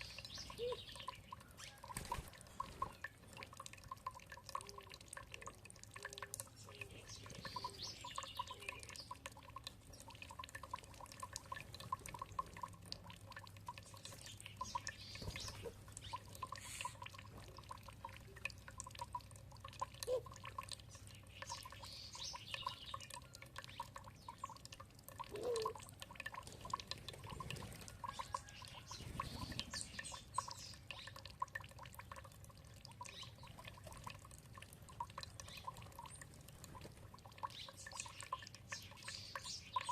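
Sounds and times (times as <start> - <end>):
water dripping and trickling: 0.0 - 39.9
faint bird calls: 25.2 - 25.9.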